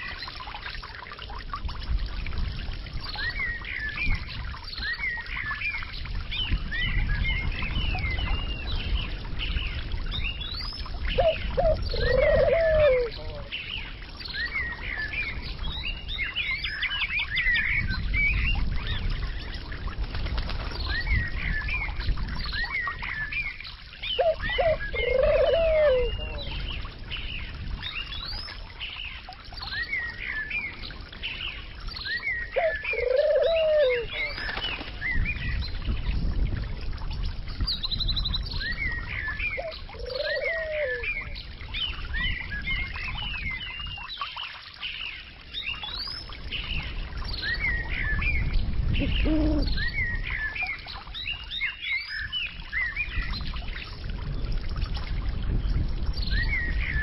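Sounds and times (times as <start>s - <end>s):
bird cooing: 11.2s - 13.4s, 24.2s - 26.5s, 32.6s - 34.4s, 39.6s - 41.2s, 49.0s - 49.7s.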